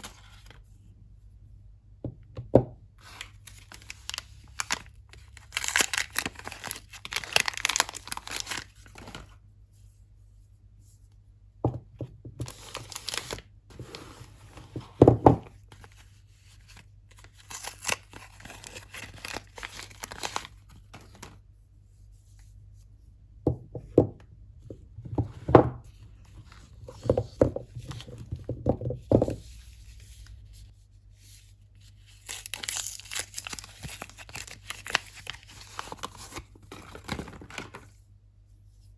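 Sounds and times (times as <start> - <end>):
packaging tearing and crinkling: 3.2 - 9.2, 12.4 - 13.5, 17.1 - 21.3, 32.1 - 37.8
soft thuds of soap handled: 11.7 - 12.4.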